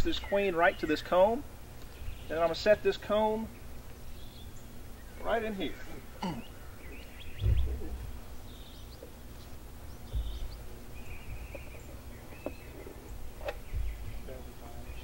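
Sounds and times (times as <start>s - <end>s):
small birds chirping: 0.0s - 15.0s
dull low thumps: 7.2s - 14.8s.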